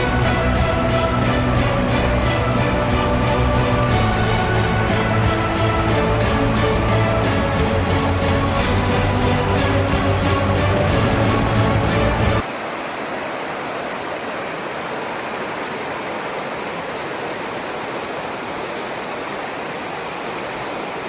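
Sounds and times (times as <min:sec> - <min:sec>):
music: 0:00.0 - 0:12.4
floodwater rushing: 0:00.0 - 0:21.0.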